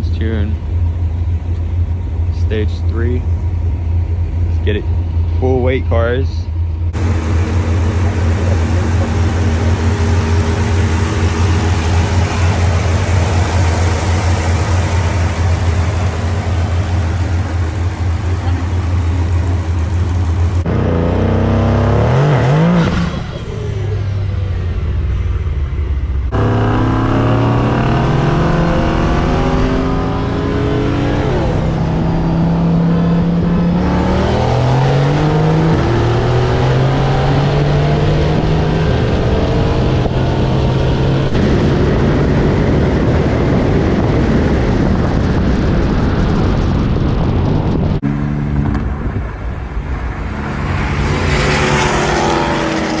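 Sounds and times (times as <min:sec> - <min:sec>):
car accelerating through gears: 0:26.3 - 0:42.1, 0:50.2 - 0:53.0.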